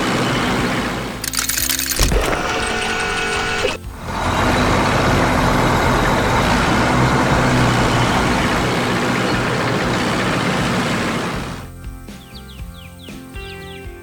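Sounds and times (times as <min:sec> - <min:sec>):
heavy truck engine running: 0:00.0 - 0:11.8
music: 0:07.2 - 0:14.0.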